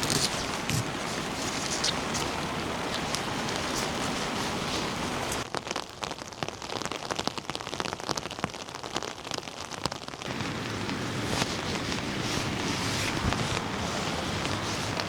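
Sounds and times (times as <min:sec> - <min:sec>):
heavy rain hissing: 0:00.0 - 0:05.4, 0:10.3 - 0:15.0
raindrops tapping close by: 0:00.0 - 0:15.0.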